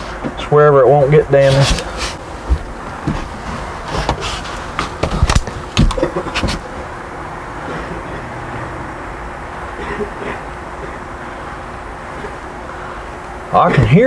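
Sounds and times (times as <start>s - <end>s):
knocks and clunks: 0.0s - 7.0s
background hum: 0.0s - 14.0s.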